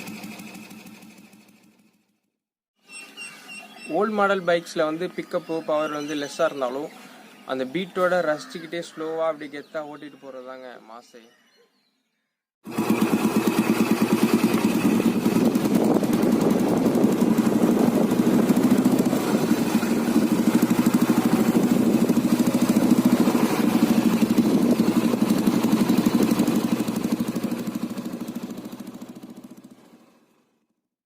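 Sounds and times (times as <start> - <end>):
motorcycle engine running: 0.0 - 2.2, 12.6 - 30.4.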